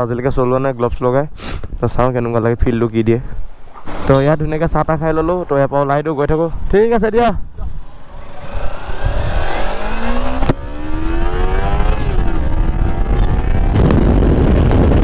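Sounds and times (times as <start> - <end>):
wind noise: 6.4 - 15.0
motorcycle engine accelerating: 7.5 - 15.0.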